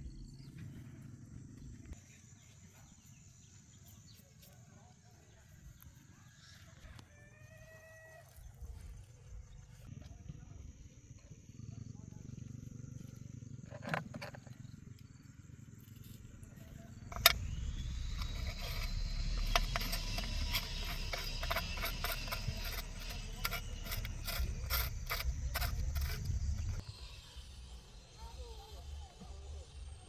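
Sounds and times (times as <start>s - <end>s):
small motor whining: 15.8s - 30.0s
rapid rattling clicks: 17.1s - 26.8s.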